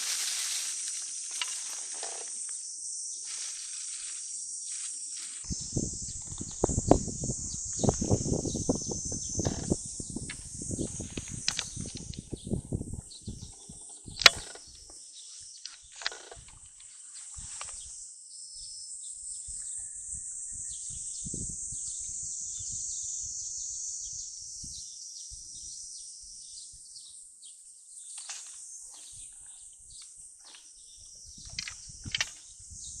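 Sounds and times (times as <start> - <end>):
high-pitched insect chorus: 0.0 - 33.0
sharp click: 14.2 - 14.6, 31.5 - 32.4.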